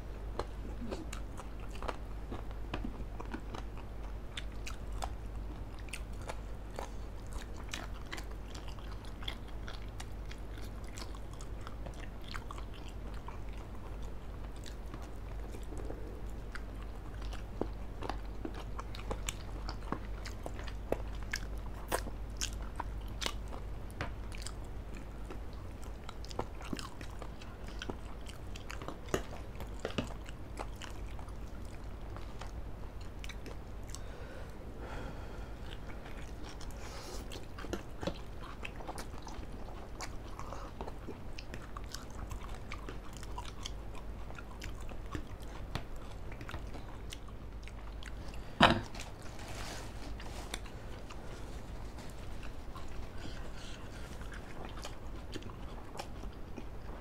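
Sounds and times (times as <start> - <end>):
steady low hum: 0.0 - 57.0
people biting and chewing: 35.6 - 57.0.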